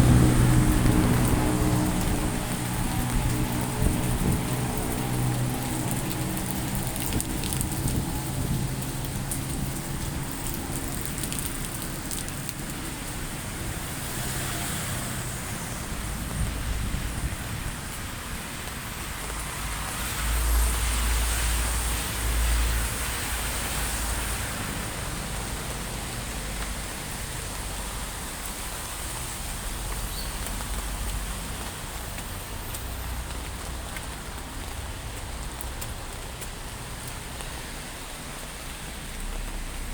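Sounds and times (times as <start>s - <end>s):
vehicle engine humming: 0.0s - 19.8s
heavy rain falling: 0.0s - 39.9s
vehicle passing rumble: 0.0s - 39.9s.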